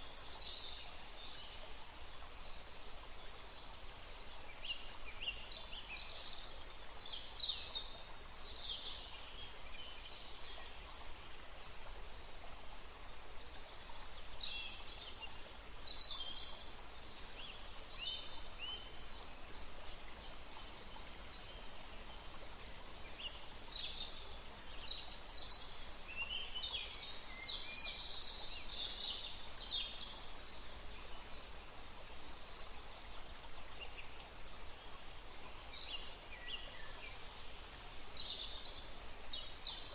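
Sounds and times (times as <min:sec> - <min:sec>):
soft forest ambience hiss: 0:00.0 - 0:39.9.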